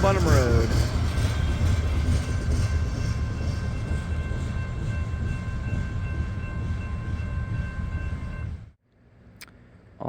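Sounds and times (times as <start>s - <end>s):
train rumbling: 0.0s - 8.8s
high ringing tones: 2.4s - 8.8s.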